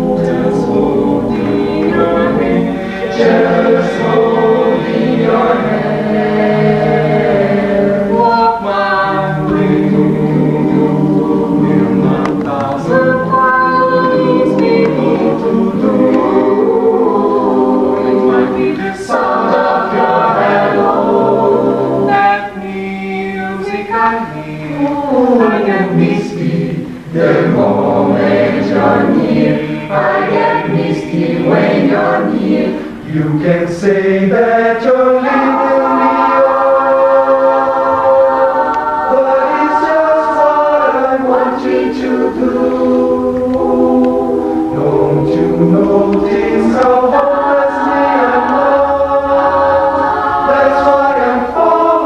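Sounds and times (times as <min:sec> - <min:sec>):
choir singing a cappella: 0:00.0 - 0:52.0.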